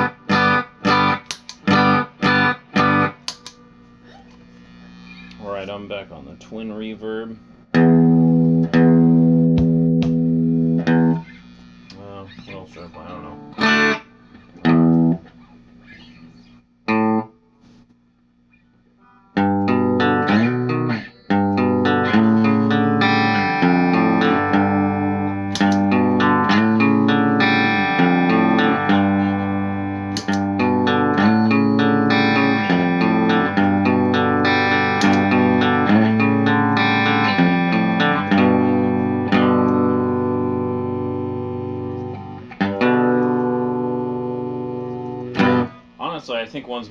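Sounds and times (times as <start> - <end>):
electric guitar chord riff: 0.0 - 4.2, 7.7 - 11.4, 12.8 - 15.3, 19.0 - 45.9.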